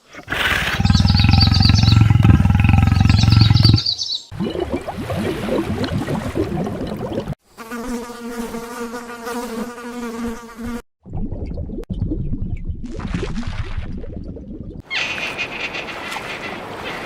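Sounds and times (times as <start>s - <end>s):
rough low animal sounds: 0.0s - 4.0s
flying insect buzzing: 7.5s - 10.8s.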